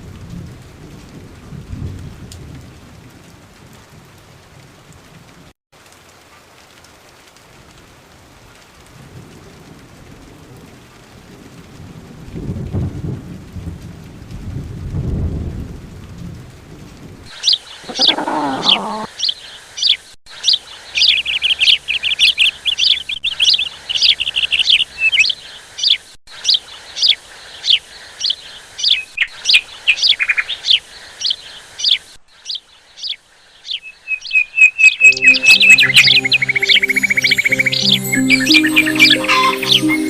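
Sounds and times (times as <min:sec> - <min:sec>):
songbirds chirping: 0:17.3 - 0:40.0
music: 0:35.0 - 0:40.0.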